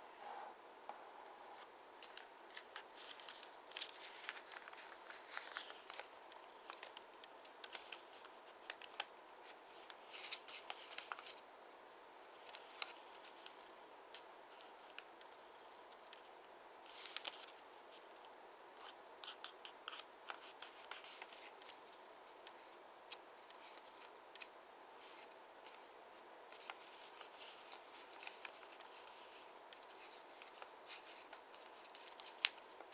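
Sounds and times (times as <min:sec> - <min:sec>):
faint steady hiss: 0:00.0 - 0:32.9
paper being folded and creased: 0:02.0 - 0:11.4, 0:16.1 - 0:17.6, 0:18.8 - 0:21.8, 0:26.5 - 0:32.9.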